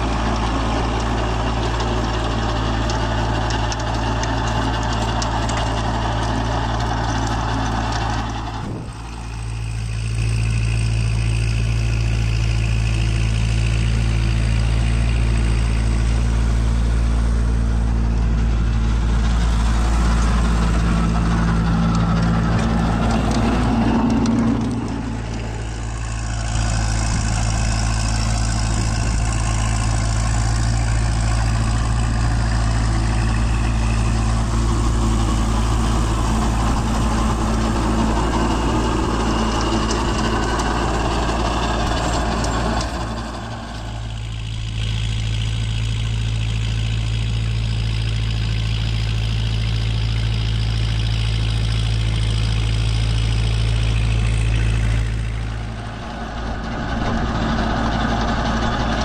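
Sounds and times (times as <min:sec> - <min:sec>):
rotary tiller in dry soil: 0:00.0 - 0:59.0
tractor diesel engine: 0:00.0 - 0:59.0.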